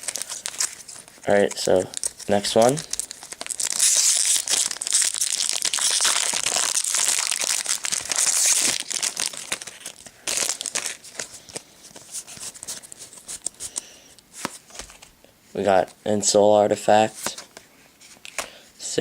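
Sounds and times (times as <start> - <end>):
plastic wrapper tearing and crinkling: 0.0 - 13.6.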